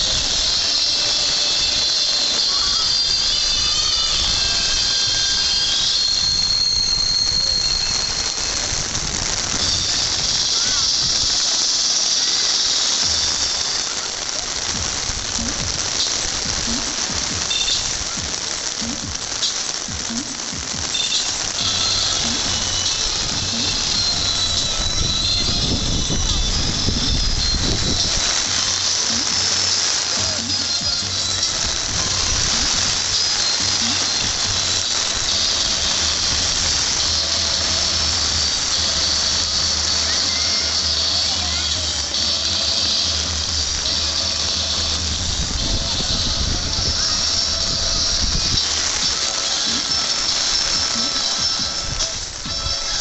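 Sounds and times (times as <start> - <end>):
heavy rain and fountain spray: 0.0 - 53.0.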